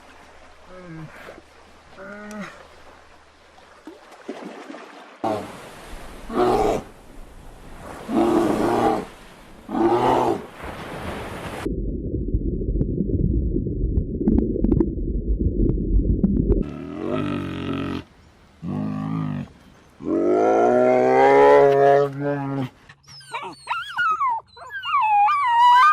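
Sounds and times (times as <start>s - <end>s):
dense low rumble: 11.7s - 16.6s.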